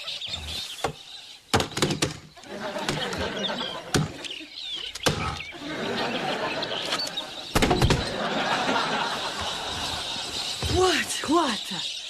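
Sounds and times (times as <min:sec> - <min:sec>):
flock of birds chirping: 0:00.0 - 0:12.0
loud thump: 0:07.6 - 0:08.1.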